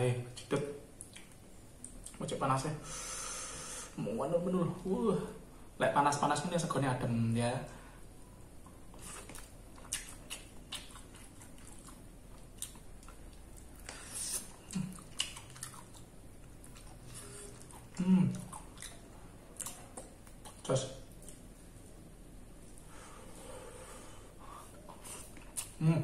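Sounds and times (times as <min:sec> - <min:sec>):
chewing and lip smacks: 0:00.4 - 0:02.2, 0:08.6 - 0:21.6, 0:24.7 - 0:25.8
person humming mm: 0:18.0 - 0:18.5, 0:25.8 - 0:26.0.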